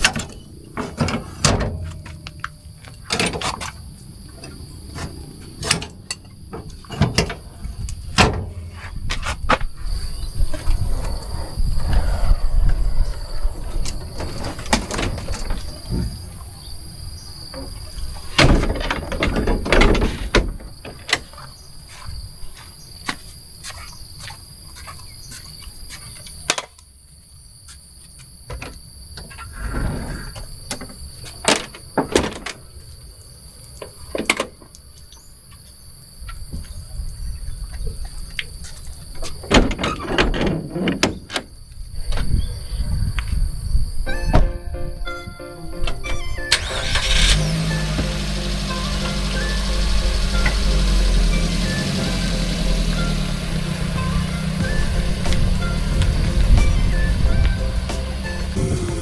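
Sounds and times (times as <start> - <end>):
insects chirring: 0.0 - 44.6
low rumbling: 4.6 - 17.1, 47.2 - 59.0.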